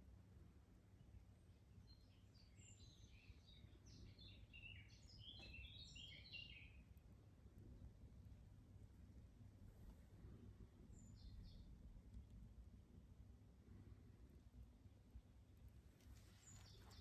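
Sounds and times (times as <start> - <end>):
songbird chirping and warbling: 1.8 - 6.9, 11.0 - 11.7, 16.0 - 17.0
low background rumble: 6.6 - 17.0.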